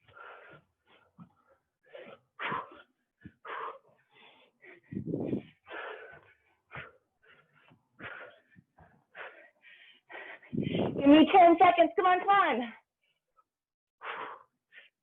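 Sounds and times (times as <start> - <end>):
person breathing hard: 0.0 - 11.0, 14.0 - 15.0.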